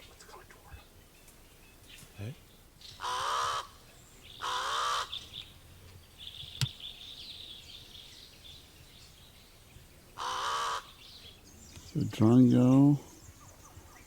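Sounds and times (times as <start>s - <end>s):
birds twittering: 0.0s - 14.0s
bird giving harsh calls: 2.8s - 5.5s, 10.2s - 11.1s.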